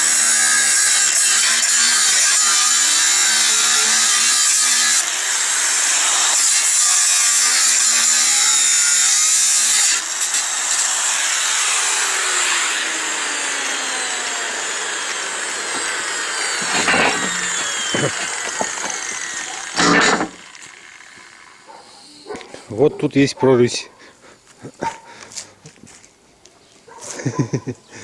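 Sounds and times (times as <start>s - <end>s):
angle grinder cutting steel: 0.0s - 22.3s.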